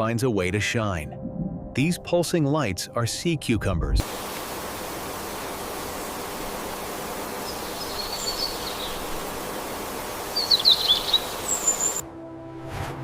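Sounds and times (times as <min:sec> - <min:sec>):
music: 0:00.0 - 0:04.0, 0:12.0 - 0:13.0
rushing hiss ambience: 0:04.0 - 0:12.0
bird chirps: 0:07.4 - 0:09.0, 0:10.3 - 0:12.0.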